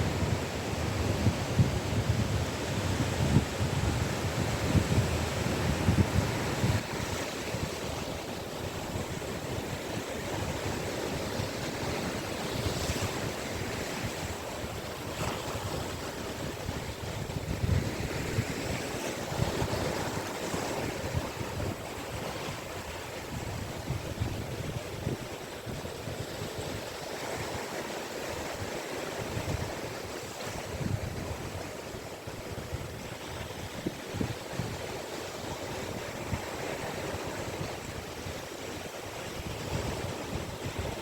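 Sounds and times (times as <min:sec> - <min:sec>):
waves breaking on a beach: 0:00.0 - 0:41.0.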